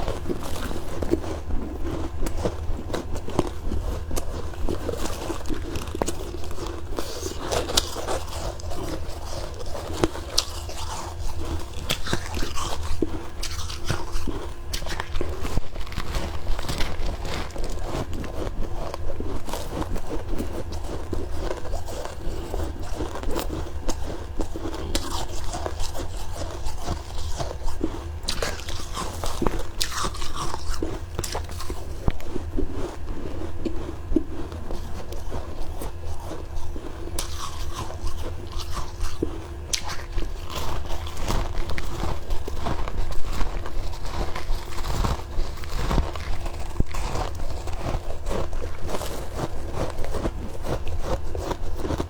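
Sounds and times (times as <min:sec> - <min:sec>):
chewing crunchy frost: 0:00.0 - 0:52.0
steady low hum: 0:00.0 - 0:52.0.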